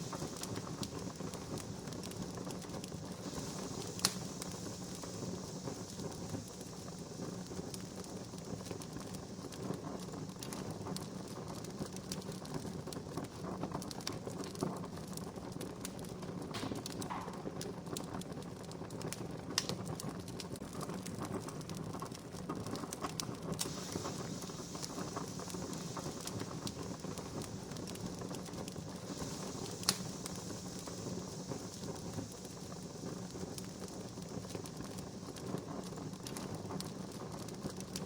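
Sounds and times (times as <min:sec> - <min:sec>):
campfire crackling and popping: 0:00.0 - 0:38.0.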